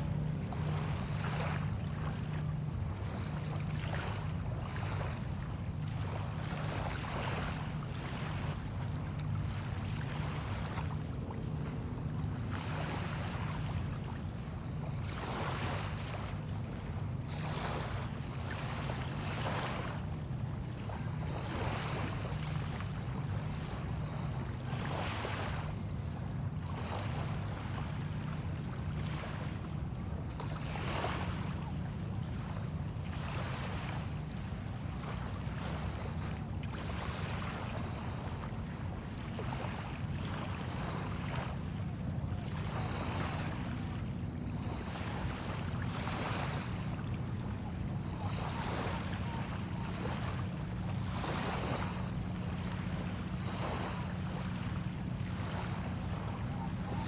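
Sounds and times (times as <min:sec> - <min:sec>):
small waves washing onto shore: 0:00.0 - 0:57.0.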